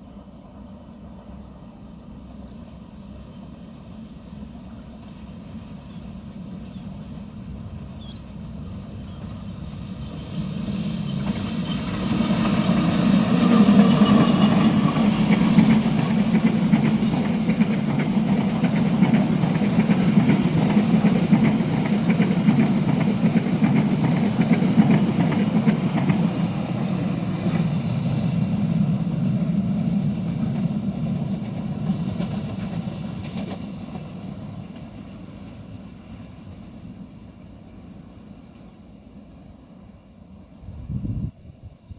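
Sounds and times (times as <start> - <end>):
train passing close by: 0.0 - 41.9.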